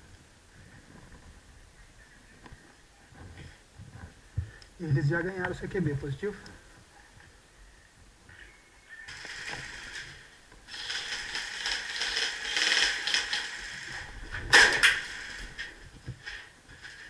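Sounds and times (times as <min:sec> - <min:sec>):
sharp loud cracks: 0:09.1 - 0:16.4
scraping rustling noise: 0:09.1 - 0:17.0.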